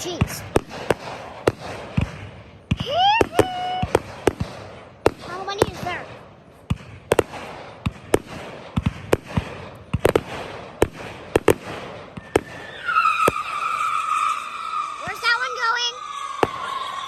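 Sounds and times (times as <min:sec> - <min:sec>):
fireworks bangs and pops: 0:00.0 - 0:17.0
steady high whistle: 0:12.2 - 0:17.0.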